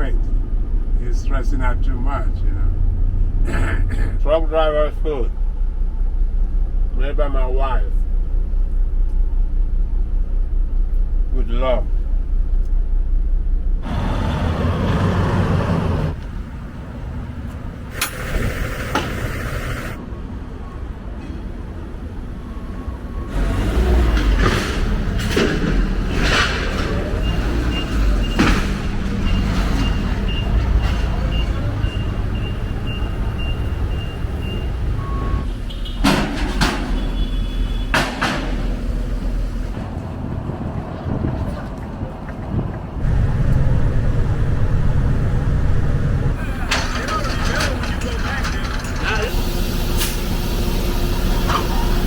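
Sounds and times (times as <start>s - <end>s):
vehicle engine rumble: 0.0s - 52.0s
reversing alarm beeping: 21.9s - 24.2s, 27.2s - 35.5s.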